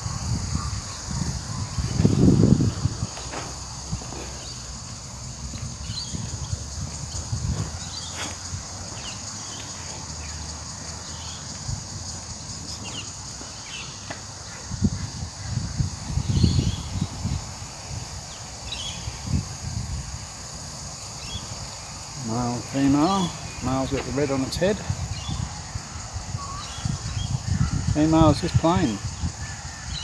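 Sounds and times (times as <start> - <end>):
high drone of insects: 0.0 - 30.0.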